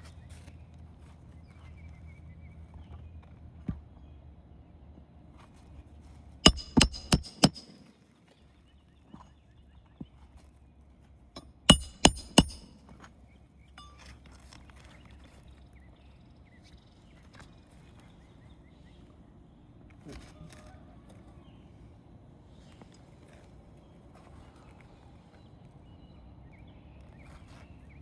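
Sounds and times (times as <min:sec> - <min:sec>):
nails hammered into shingles: 0:06.5 - 0:07.9, 0:11.4 - 0:12.9.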